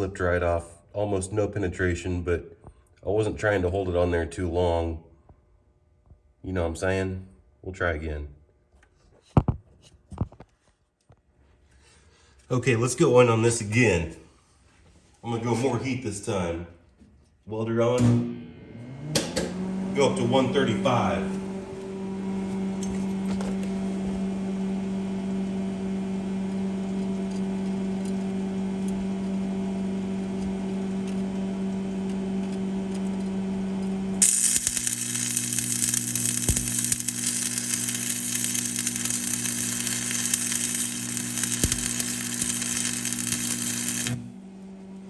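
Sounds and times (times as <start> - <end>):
welding arc crackling and sizzling: 34.2 - 44.3
welder humming: 34.2 - 44.9.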